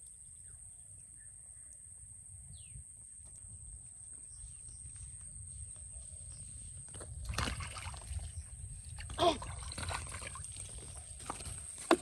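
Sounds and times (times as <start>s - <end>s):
water splashing in a pond: 7.1s - 12.0s.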